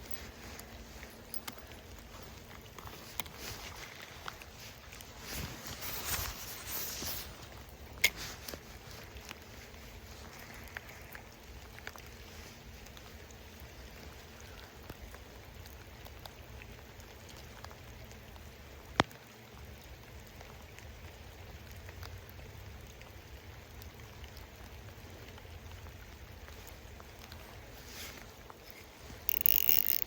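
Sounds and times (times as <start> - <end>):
rain falling: 0.0 - 30.0
small drop ticks: 29.2 - 30.0.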